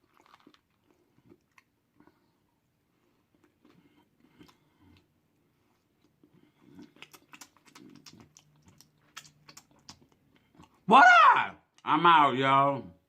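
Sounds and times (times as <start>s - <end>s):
chewing and wet mouth clicks: 0.0s - 2.2s, 3.3s - 10.8s.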